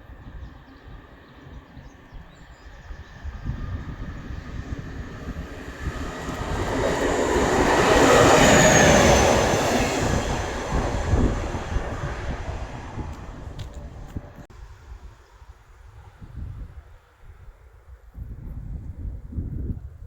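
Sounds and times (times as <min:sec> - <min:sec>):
train passing by: 0:00.0 - 0:14.8
high squeal: 0:03.0 - 0:13.0.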